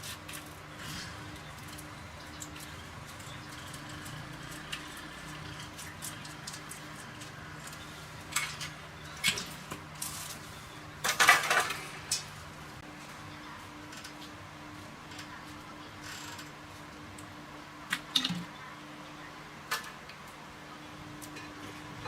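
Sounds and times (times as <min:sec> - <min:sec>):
metal parts clattering: 0:11.0 - 0:12.3.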